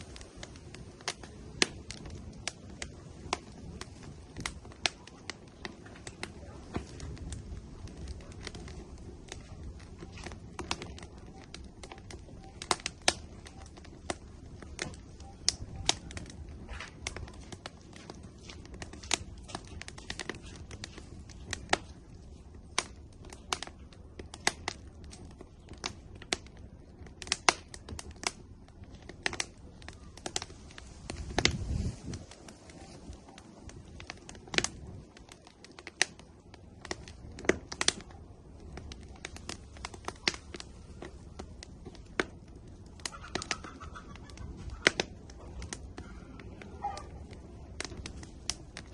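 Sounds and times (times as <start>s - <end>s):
low steady rush of fire: 0.0s - 48.9s
wood fire crackling and popping: 0.0s - 48.9s.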